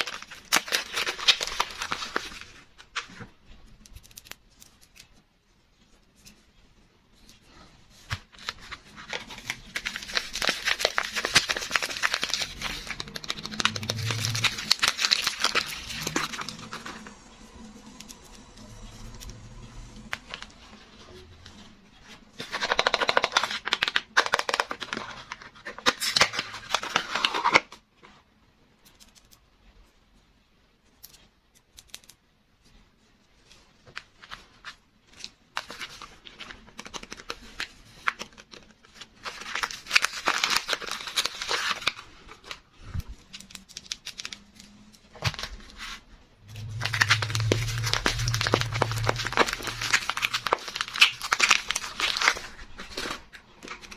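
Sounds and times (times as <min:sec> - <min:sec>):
wrapper crinkling and tearing: 0:00.0 - 0:03.3, 0:08.0 - 0:20.5, 0:22.4 - 0:27.8, 0:35.1 - 0:42.6, 0:43.2 - 0:53.9.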